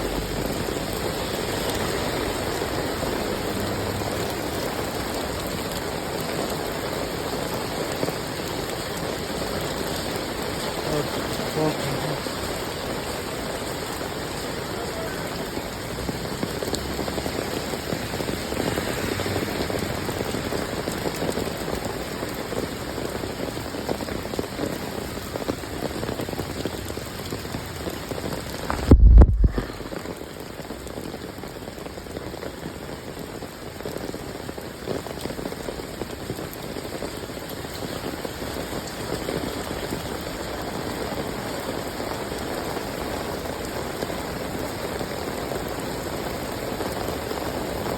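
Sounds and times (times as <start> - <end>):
steady rain falling: 0.0 - 47.9
short low thump: 28.7 - 30.1.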